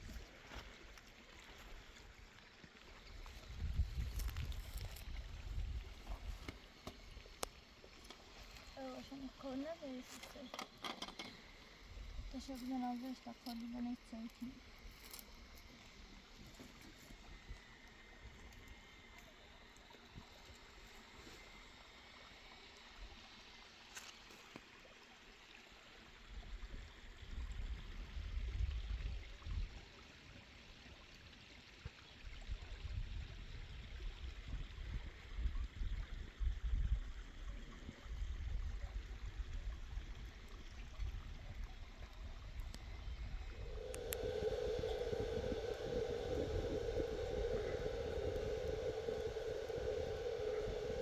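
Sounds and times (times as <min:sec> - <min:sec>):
spring water flowing: 0:39.8 - 0:51.0
low rumble gusts: 0:40.3 - 0:51.0
steady pitched hum: 0:41.6 - 0:51.0.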